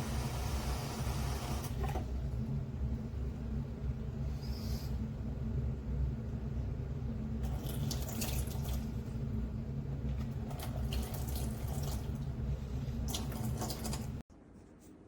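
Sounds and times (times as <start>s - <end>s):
tap water running: 0.0s - 2.1s, 7.4s - 9.2s, 10.1s - 14.2s.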